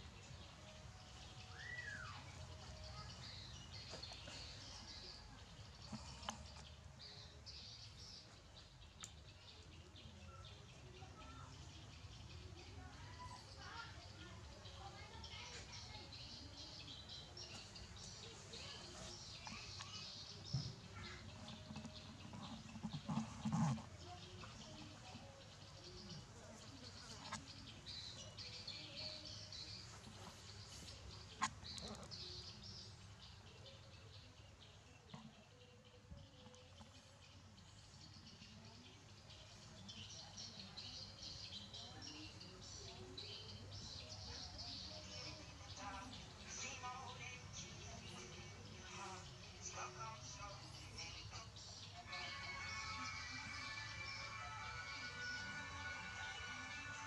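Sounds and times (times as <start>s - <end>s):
small birds chirping: 0.0s - 57.0s
faint high bird chirps: 0.2s - 23.2s.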